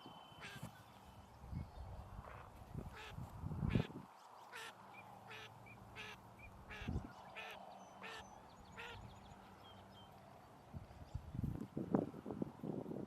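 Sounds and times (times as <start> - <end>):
wind rumble on microphone: 1.3 - 4.1, 6.6 - 7.3, 10.7 - 13.0.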